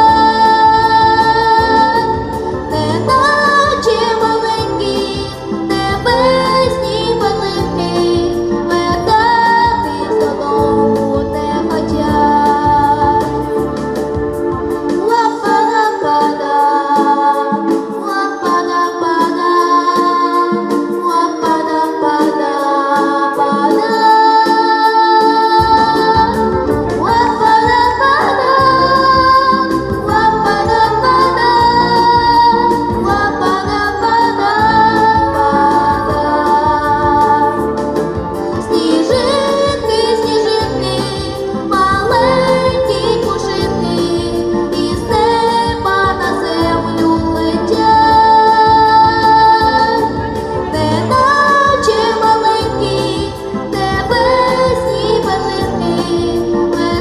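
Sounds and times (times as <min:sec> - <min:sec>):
bass: 0:00.0 - 0:22.3, 0:22.9 - 0:57.0
instrumental backing: 0:00.0 - 0:57.0
person singing: 0:15.0 - 0:57.0.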